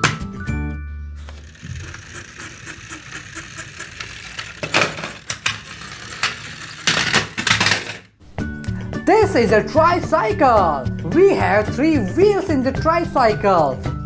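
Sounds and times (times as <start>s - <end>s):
toy track clicks: 1.2s - 8.0s
toy wheels rattling on track: 1.2s - 8.1s.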